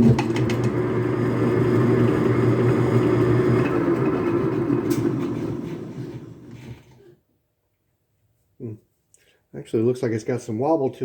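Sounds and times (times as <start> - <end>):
metal lathe humming: 0.3 - 7.0.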